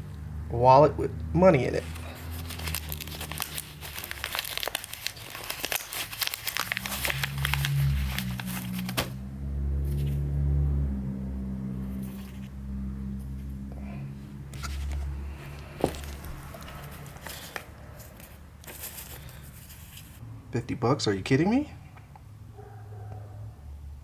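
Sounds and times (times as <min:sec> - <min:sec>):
low steady hum with deep tones: 0:00.0 - 0:20.6
wallet and banknotes rustling: 0:01.7 - 0:09.2, 0:14.5 - 0:20.2.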